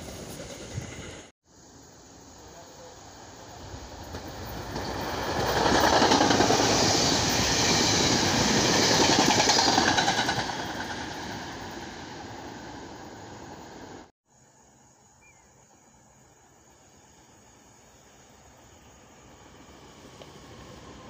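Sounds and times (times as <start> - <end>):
train wheels clattering on rails: 4.0 - 11.5.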